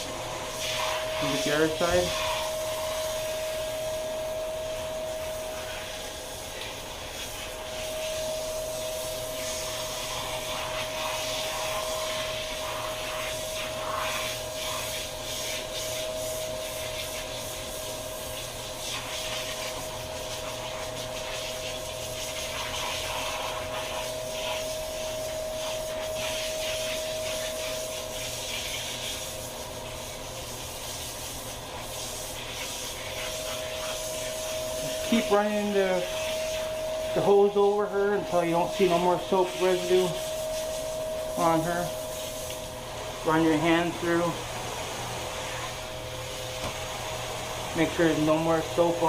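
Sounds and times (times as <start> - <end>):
shower head spraying water: 0.0 - 49.0
steady tone: 0.5 - 6.5, 34.0 - 44.4.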